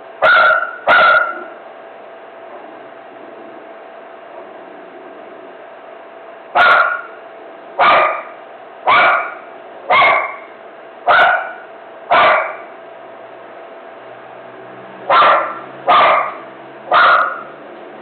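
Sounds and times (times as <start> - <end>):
dog barking: 0.2 - 1.6, 6.6 - 7.2, 7.8 - 10.5, 11.1 - 12.7, 15.1 - 17.6.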